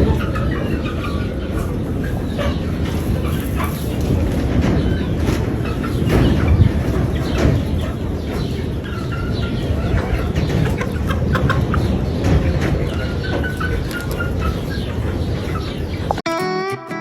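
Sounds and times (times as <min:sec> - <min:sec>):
chickens clucking: 0:00.0 - 0:16.2.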